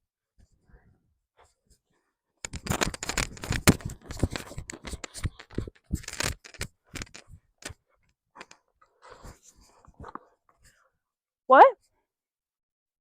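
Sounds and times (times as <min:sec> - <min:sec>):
scraping rustling and clicking: 0:02.5 - 0:07.8.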